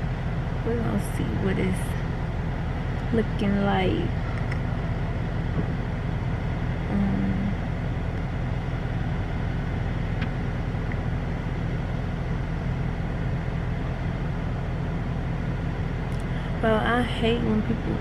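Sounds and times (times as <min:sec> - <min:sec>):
car engine low hum: 0:00.0 - 0:18.0
short low tone: 0:06.9 - 0:07.6.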